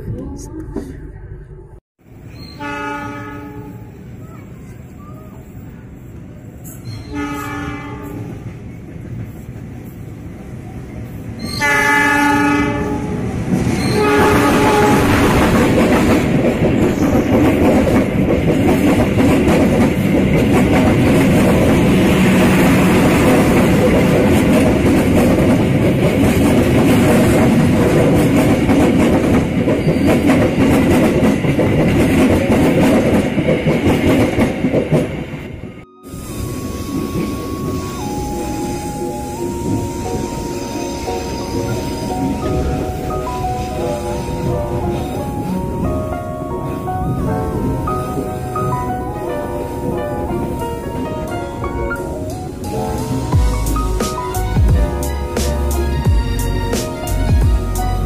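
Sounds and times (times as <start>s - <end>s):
train rumbling on rails: 0.0s - 58.0s
train horn blasts: 2.6s - 4.0s, 7.1s - 8.4s, 11.6s - 13.3s, 13.9s - 15.4s, 52.9s - 58.0s.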